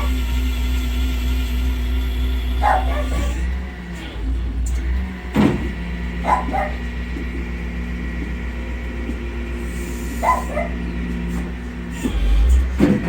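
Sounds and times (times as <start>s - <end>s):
engine idling: 0.0s - 13.0s
dog barking: 2.6s - 3.4s, 6.2s - 6.9s, 10.2s - 10.8s.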